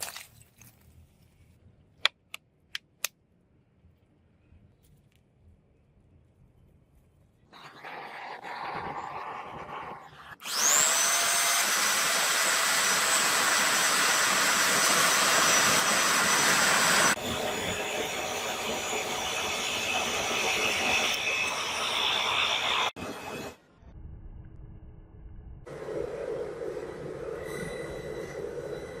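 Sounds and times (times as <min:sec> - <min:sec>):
electric motor whine: 0:07.8 - 0:23.5.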